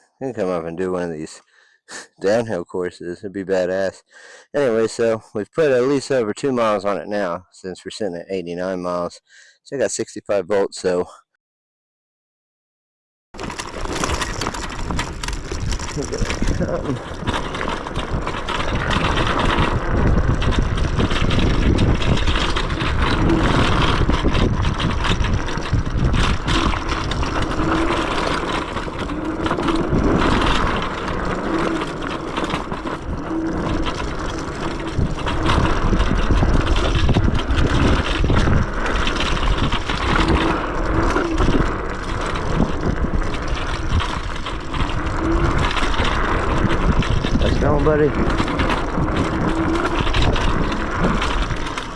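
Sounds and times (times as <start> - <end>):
tyres rumbling over dirt: 13.4 - 51.9
wind buffeting microphone: 14.6 - 51.9.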